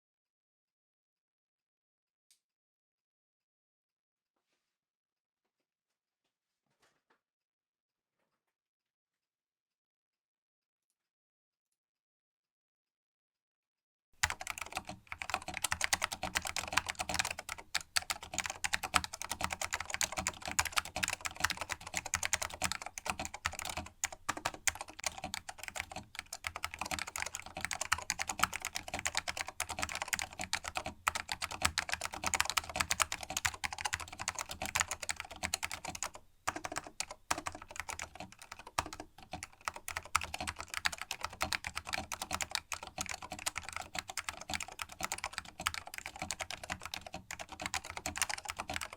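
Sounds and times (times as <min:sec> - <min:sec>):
mechanical keyboard typing: 0:14.2 - 0:48.9.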